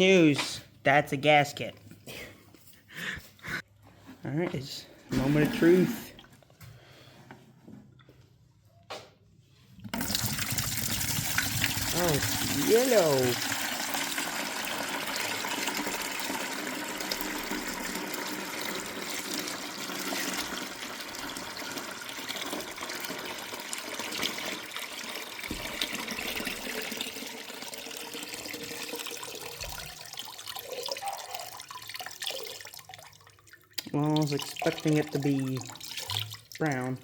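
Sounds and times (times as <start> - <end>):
liquid gushing from tank: 9.9 - 36.9.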